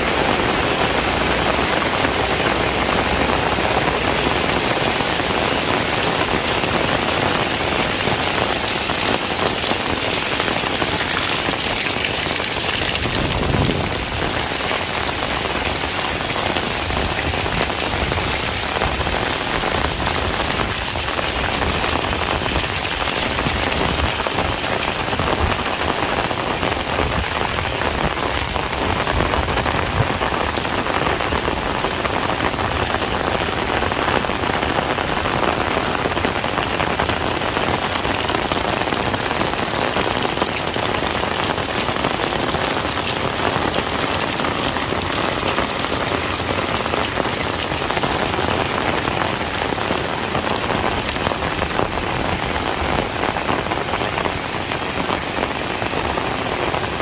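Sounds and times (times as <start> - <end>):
heavy rain pattering: 0.0 - 57.0.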